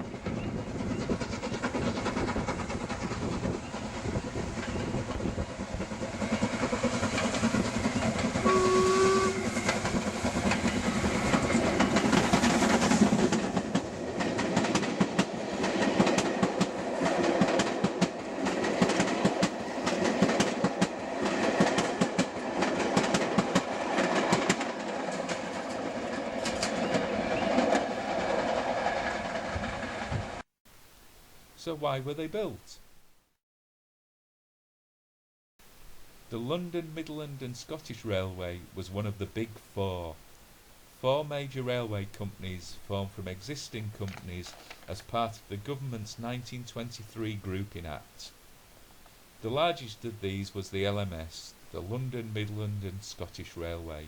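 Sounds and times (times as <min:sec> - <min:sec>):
steam train running: 0:00.0 - 0:30.4, 0:41.0 - 0:48.2, 0:49.4 - 0:54.0
wheels clattering over rail joints: 0:00.0 - 0:30.4
train whistle: 0:07.8 - 0:09.9.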